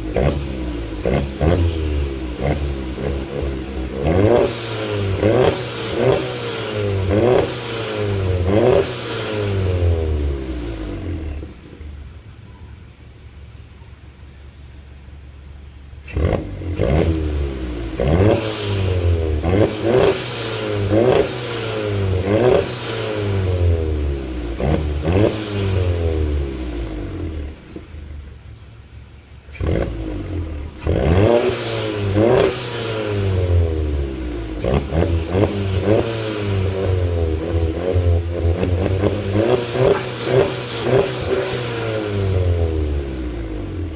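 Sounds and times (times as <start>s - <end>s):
car engine revving: 0.0s - 12.2s, 15.9s - 28.7s, 29.4s - 43.9s.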